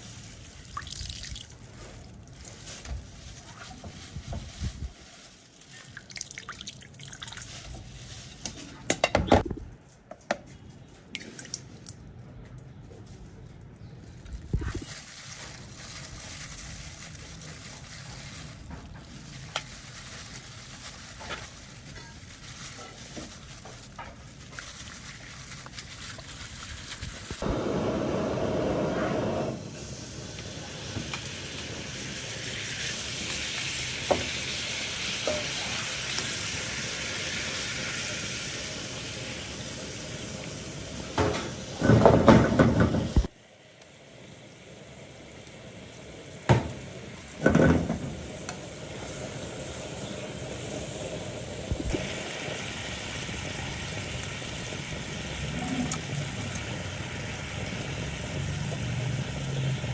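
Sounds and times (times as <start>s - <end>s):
food sizzling in hot oil: 24.4s - 42.2s, 44.1s - 59.9s.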